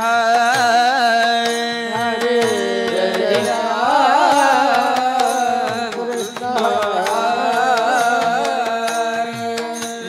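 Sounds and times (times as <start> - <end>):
hand-drum beats: 0.0 - 10.0
man singing: 0.0 - 10.0.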